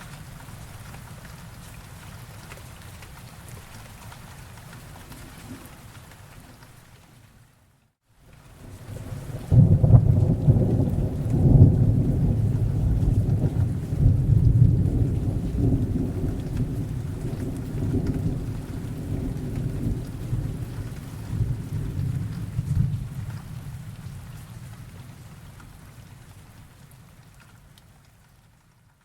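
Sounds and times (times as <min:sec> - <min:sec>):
steady rain: 0:00.0 - 0:29.0
thunder rolling: 0:08.8 - 0:24.2.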